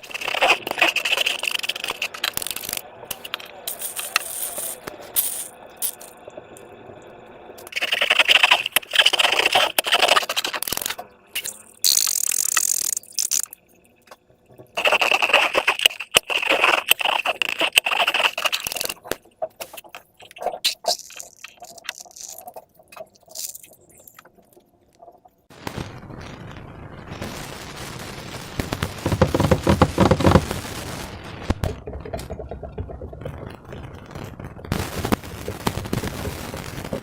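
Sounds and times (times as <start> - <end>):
slime wet crackling and scraping: 0.0 - 6.2, 7.6 - 25.3, 28.9 - 30.6.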